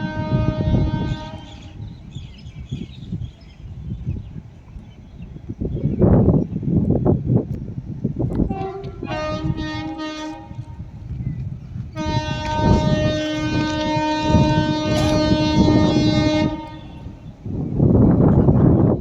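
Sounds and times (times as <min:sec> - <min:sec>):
locomotive horn blasts: 0:00.0 - 0:01.8, 0:08.5 - 0:10.9, 0:12.0 - 0:17.4
train wheels rumbling and clattering: 0:00.0 - 0:19.0.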